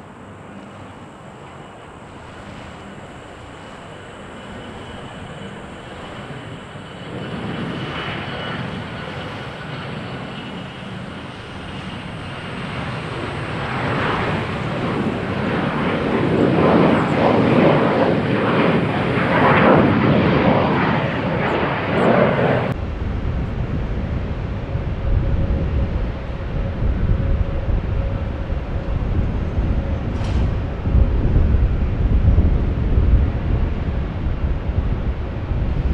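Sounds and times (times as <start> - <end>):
jet taking off: 0.0 - 35.9
wind on microphone: 2.0 - 35.9
low rumble: 22.7 - 35.9.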